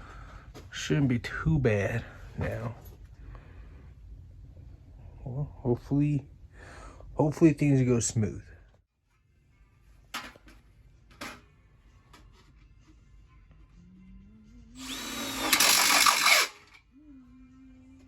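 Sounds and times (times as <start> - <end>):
power drill spinning up: 14.8 - 16.8.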